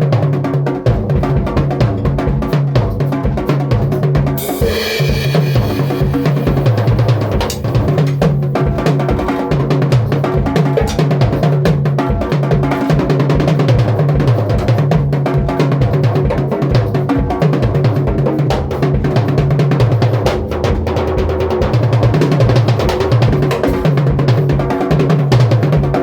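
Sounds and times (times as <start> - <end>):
drum kit played fast: 0.0 - 26.0
cymbal crash: 4.4 - 8.3.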